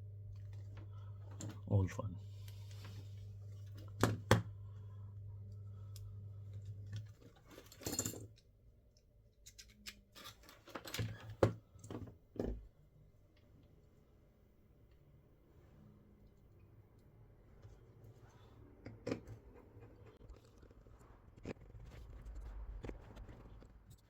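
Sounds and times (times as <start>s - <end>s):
low steady hum: 0.0s - 24.0s
tools and parts clicking: 9.3s - 11.3s.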